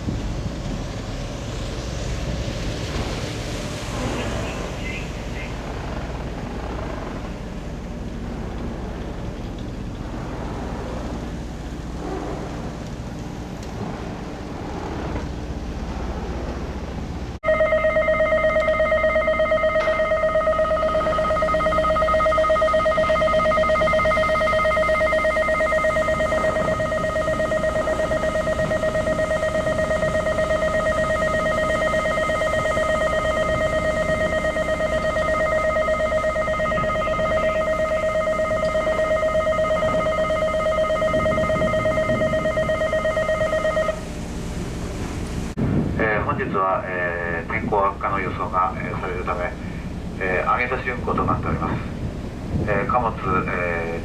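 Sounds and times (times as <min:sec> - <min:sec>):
wind rumble: 0:00.0 - 0:18.2, 0:18.8 - 0:54.0
low engine rumble: 0:00.0 - 0:54.0
electric bell ringing: 0:17.4 - 0:44.2.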